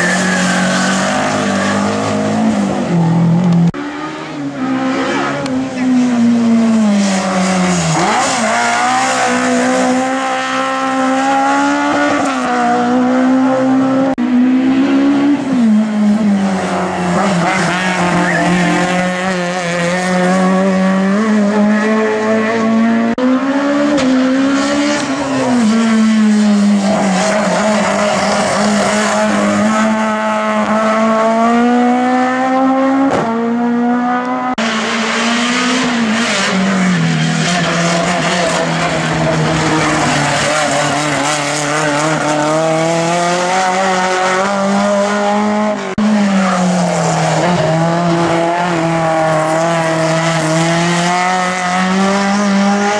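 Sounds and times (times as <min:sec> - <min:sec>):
race car engine revving: 0:00.0 - 0:52.9.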